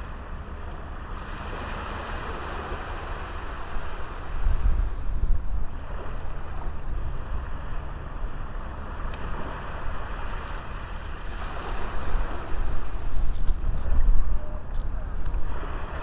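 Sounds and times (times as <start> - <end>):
sea waves washing onto beach: 0.0 - 16.0
wind rumbling on microphone: 1.0 - 16.0.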